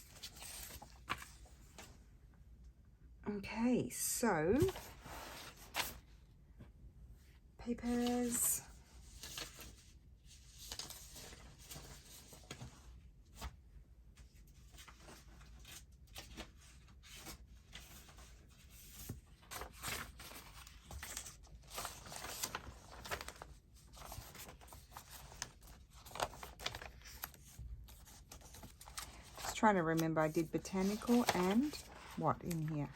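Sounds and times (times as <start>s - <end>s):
paper sheets rustling: 0.0s - 2.0s, 4.5s - 6.1s, 14.6s - 32.9s.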